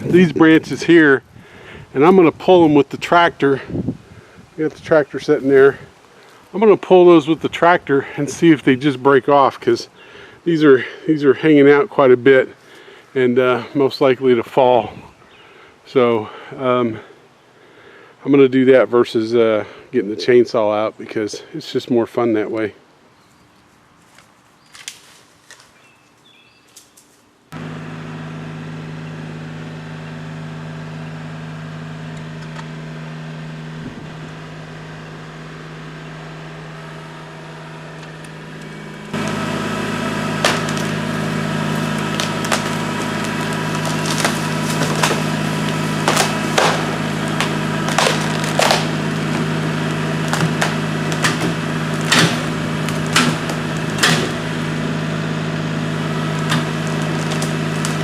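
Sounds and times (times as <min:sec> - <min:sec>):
diesel tractor engine running: 0:00.0 - 0:22.7, 0:27.5 - 0:58.0
branches cracking and snapping: 0:24.0 - 0:25.9, 0:36.8 - 0:58.0.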